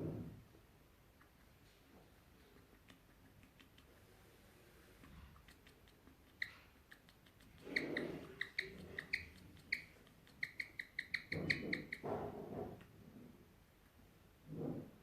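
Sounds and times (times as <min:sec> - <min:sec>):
guinea pig chirping: 0:01.1 - 0:12.2.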